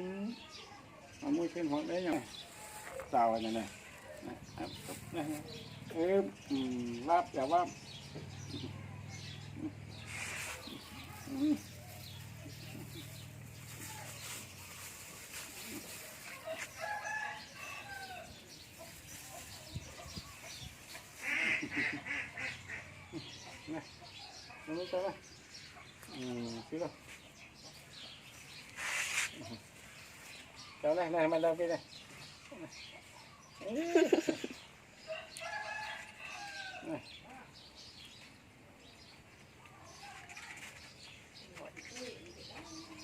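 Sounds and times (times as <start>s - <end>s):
chickens clucking: 18.8s - 23.8s.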